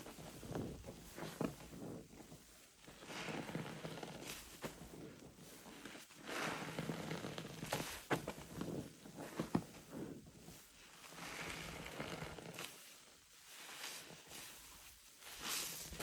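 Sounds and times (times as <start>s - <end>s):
soapy sponge squelching: 13.5s - 16.0s.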